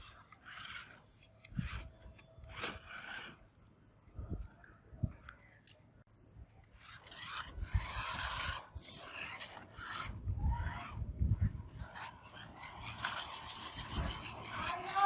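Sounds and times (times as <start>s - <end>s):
toy crawler scraping and rubbing: 0.0s - 3.7s, 6.6s - 15.0s.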